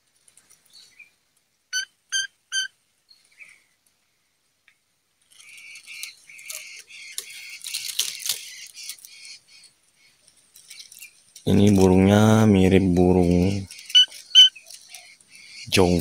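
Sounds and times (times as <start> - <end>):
short sharp bird calls: 1.7 - 3.8, 13.6 - 16.0
scratching and rustling on phone: 5.2 - 9.3.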